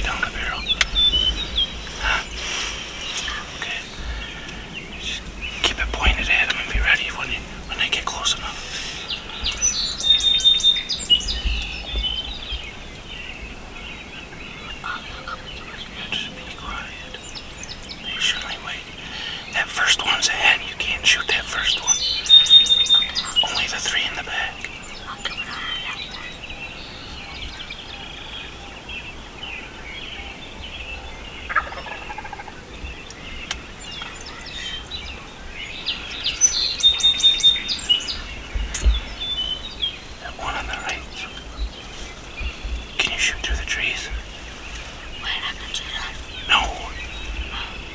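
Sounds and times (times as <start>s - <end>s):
songbird chirping and whistling: 0.0s - 47.9s
turkeys gobbling: 31.4s - 32.6s.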